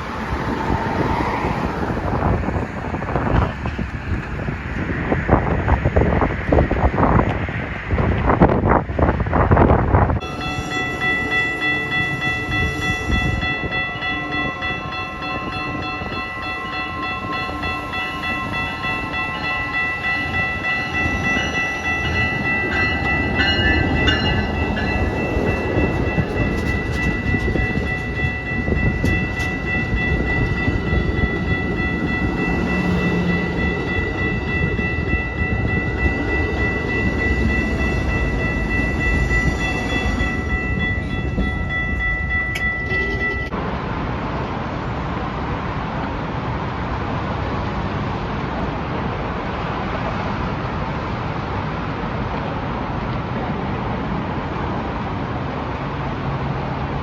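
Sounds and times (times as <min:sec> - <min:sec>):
passenger train rumbling: 0:00.0 - 0:57.0
steady high tone: 0:10.2 - 0:43.6.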